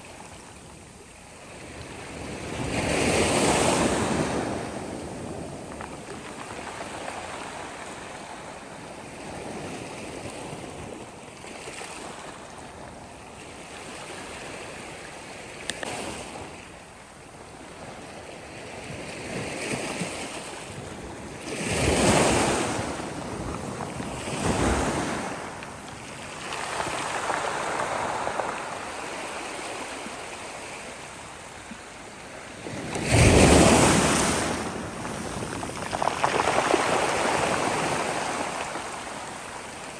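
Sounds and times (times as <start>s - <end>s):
sea waves washing onto shore: 21.5s - 39.9s.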